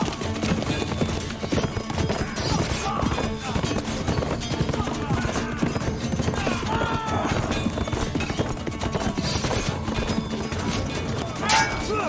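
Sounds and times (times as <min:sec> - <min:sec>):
hoofbeats: 0:00.0 - 0:12.0
weapons clashing: 0:01.6 - 0:12.0
people shouting: 0:02.2 - 0:03.6, 0:04.7 - 0:07.7, 0:11.2 - 0:12.0.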